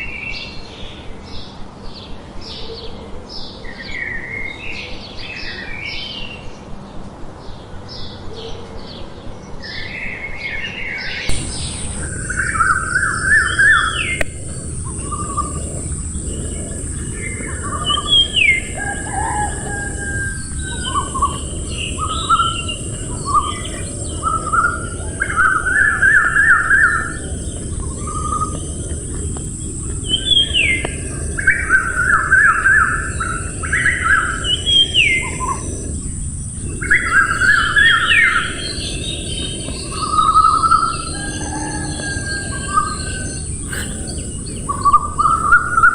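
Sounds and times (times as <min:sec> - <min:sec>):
songbirds chirping: 0:00.0 - 0:45.9
bird trills and whistled calls: 0:10.6 - 0:45.9
steady high hiss: 0:11.3 - 0:45.9.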